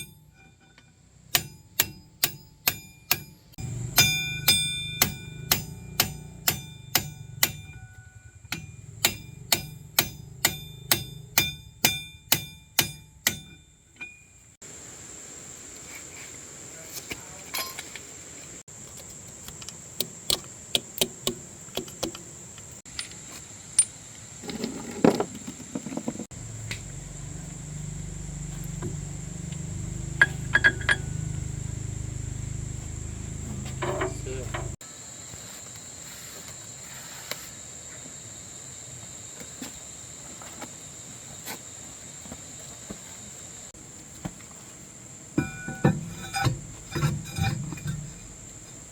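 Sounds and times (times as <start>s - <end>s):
low machine hum: 26.3s - 34.8s.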